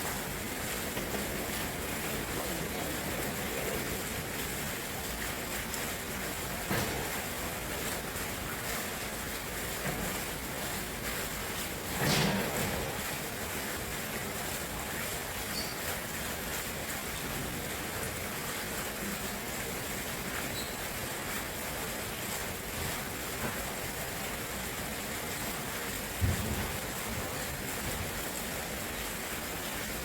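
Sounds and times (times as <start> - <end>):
stream water flowing: 0.0 - 30.0.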